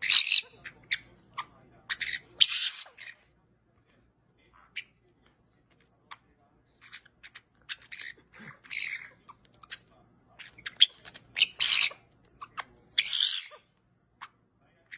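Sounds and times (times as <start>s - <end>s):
bird squawking and chirping: 0.0s - 3.3s, 6.8s - 14.9s.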